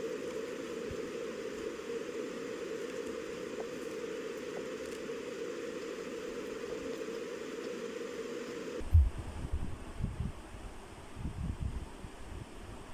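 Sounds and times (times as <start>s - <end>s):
low hum with hiss: 0.0s - 12.9s
wind buffeting microphone: 8.8s - 12.9s.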